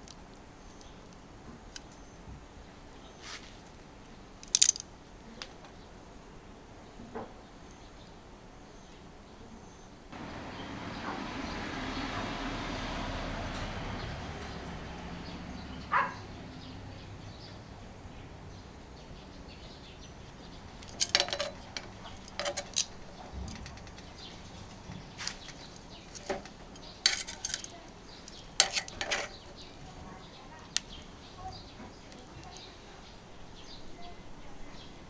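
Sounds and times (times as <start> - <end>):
metal utensils clinking on griddle: 20.8 - 24.3, 25.2 - 29.6.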